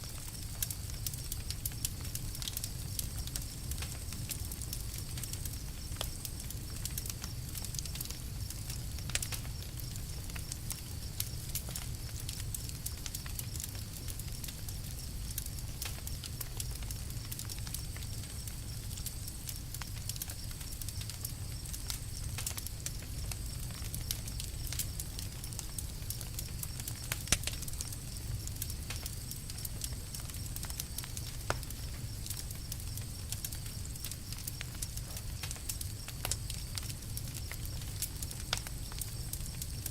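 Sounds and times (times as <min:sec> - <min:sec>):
campfire crackling: 0:00.0 - 0:39.9
low fire rumble: 0:00.0 - 0:39.9.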